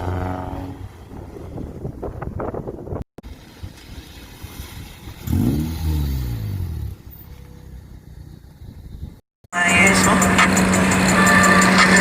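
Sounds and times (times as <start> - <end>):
car engine running: 6.9 - 12.0.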